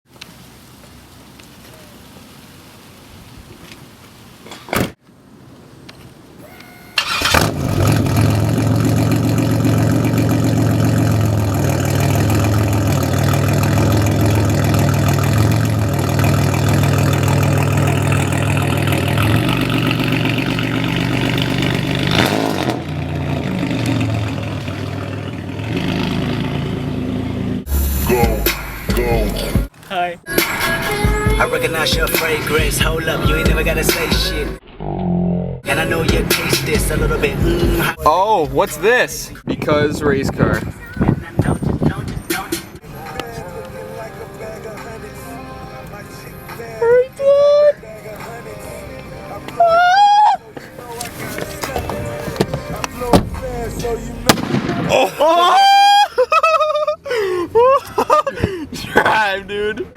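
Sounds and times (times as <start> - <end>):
car engine starting and idling: 7.0 - 34.8, 35.6 - 39.4, 50.6 - 55.3.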